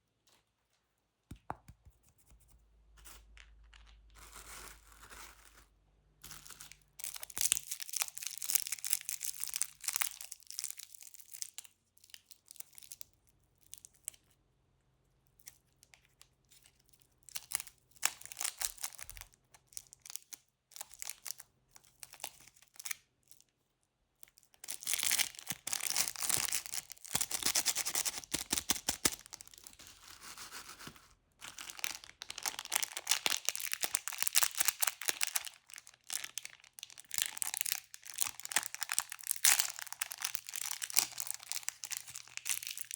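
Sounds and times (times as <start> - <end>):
wrappers crinkling and tearing: 24.6 - 42.9.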